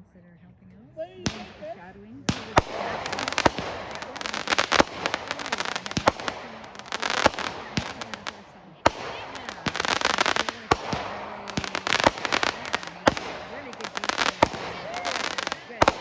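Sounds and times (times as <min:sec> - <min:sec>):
fireworks cracking and popping: 0:01.2 - 0:16.0
fireworks crackling hiss: 0:01.2 - 0:16.0
firework bang: 0:01.3 - 0:16.0.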